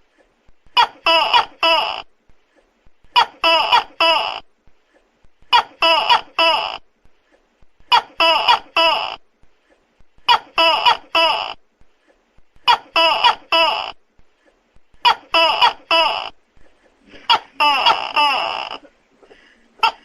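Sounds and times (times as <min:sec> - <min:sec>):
gecko calling: 0:17.2 - 0:18.9.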